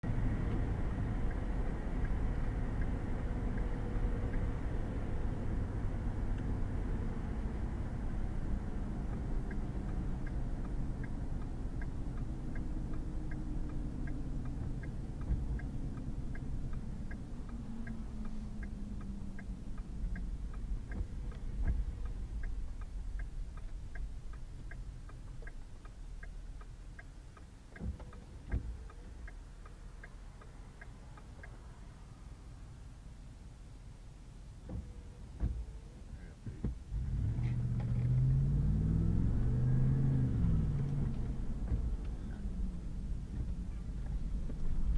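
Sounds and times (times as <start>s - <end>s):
truck engine and tyre noise: 0.0s - 44.9s.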